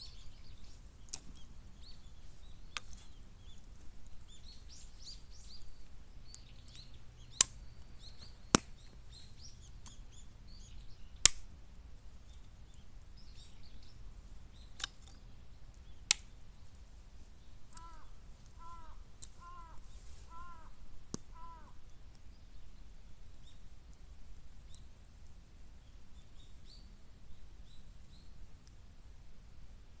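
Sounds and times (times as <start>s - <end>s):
bamboo cracking in fire: 6.3s - 10.1s, 11.2s - 11.6s, 14.7s - 16.9s
bird calling harsh notes: 17.7s - 21.8s.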